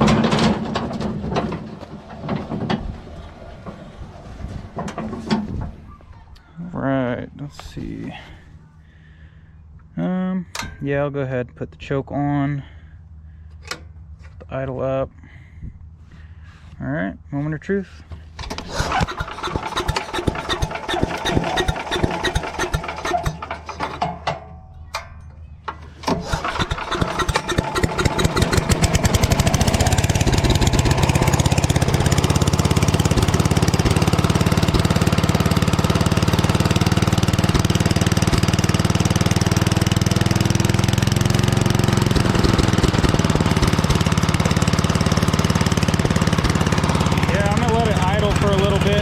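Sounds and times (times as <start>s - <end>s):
small gas engine starting and running: 0.0s - 5.4s, 18.4s - 24.3s, 25.8s - 49.0s.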